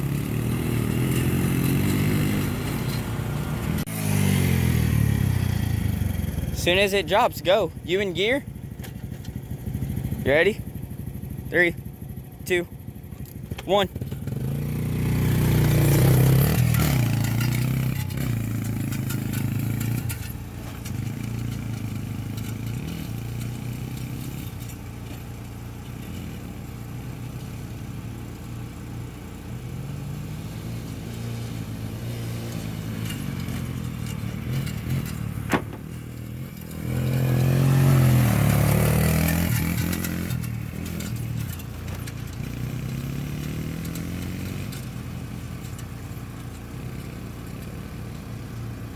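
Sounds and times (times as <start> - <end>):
off-road engines revving: 0.0 - 48.9.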